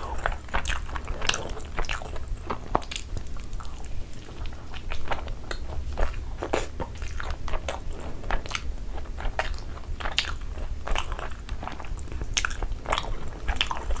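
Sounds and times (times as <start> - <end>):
person chewing chicken: 0.0 - 14.0.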